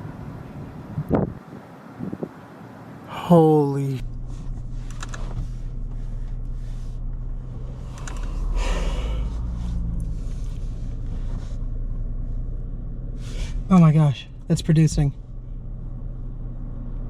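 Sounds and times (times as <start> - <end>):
idling vehicle hum: 0.0 - 17.0
person gasping and breathing hard: 8.6 - 9.4.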